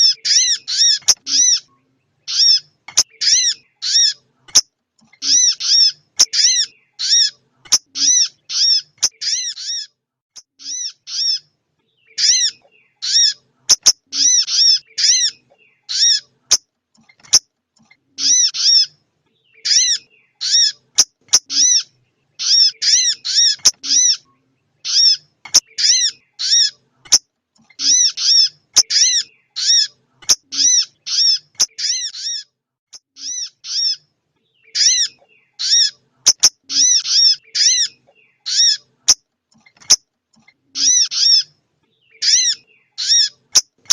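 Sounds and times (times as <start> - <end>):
bird short high chirps: 18.2 - 27.2.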